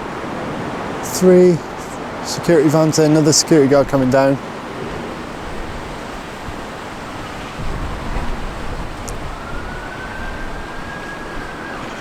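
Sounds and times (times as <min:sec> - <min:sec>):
wind noise on microphone: 0:03.7 - 0:12.0
distant emergency siren wailing: 0:04.8 - 0:12.0.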